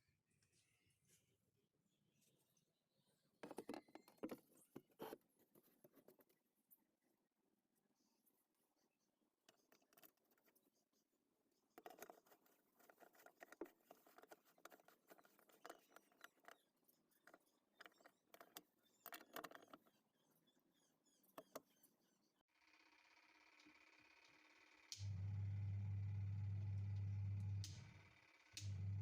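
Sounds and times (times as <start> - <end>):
faint clicks and scratching: 2.2 - 22.4.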